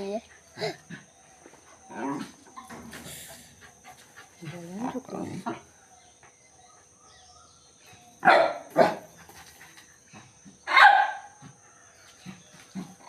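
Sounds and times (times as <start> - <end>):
dog barking: 8.2 - 9.1, 10.7 - 11.4.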